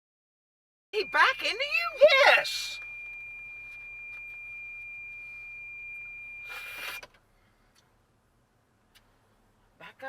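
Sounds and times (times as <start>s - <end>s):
high-pitched electronic tone: 1.0s - 7.0s.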